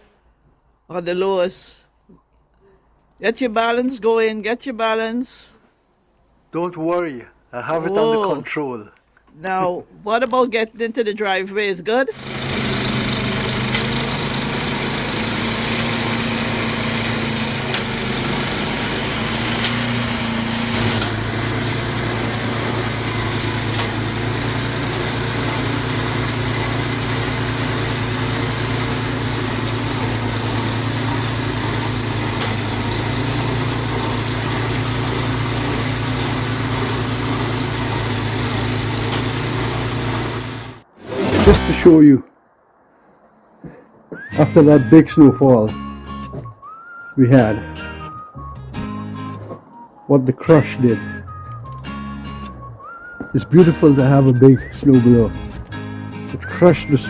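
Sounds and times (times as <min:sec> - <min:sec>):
snowblower engine running: 0:12.1 - 0:41.9.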